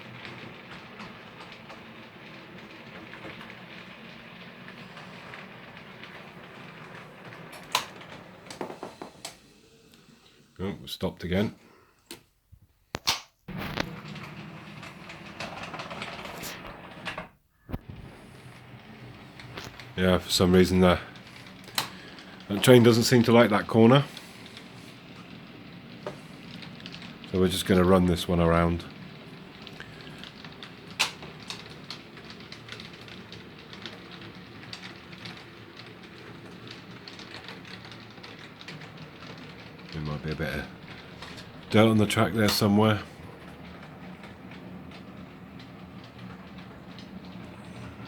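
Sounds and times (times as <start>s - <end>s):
train wheels clattering: 0.0s - 9.4s, 18.1s - 48.0s
model train motor humming: 0.0s - 10.6s, 18.0s - 48.0s
sharp click: 13.0s - 13.3s.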